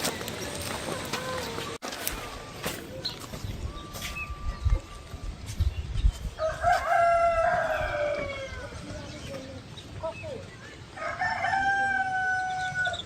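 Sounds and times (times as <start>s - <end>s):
rooster crowing: 6.4s - 9.0s, 11.0s - 13.0s.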